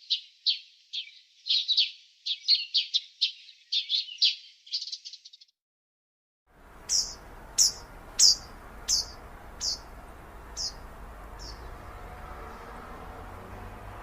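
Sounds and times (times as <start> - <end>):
low steady background noise: 6.5 - 14.0.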